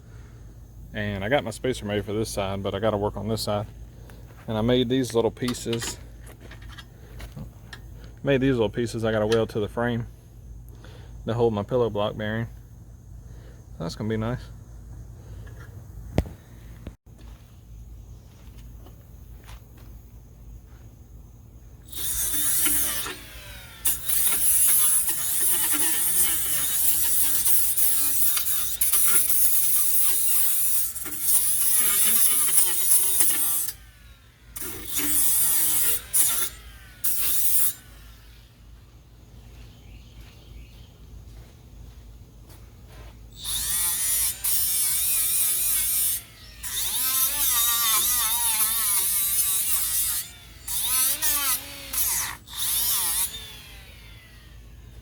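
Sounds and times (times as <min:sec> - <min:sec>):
handheld power tool running: 0:21.9 - 0:38.6, 0:43.4 - 0:55.0.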